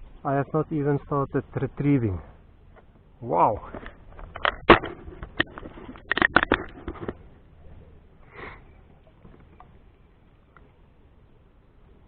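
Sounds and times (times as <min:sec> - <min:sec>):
sharp clicks and knocks: 0:03.7 - 0:07.2
breath or sniff: 0:08.2 - 0:08.7.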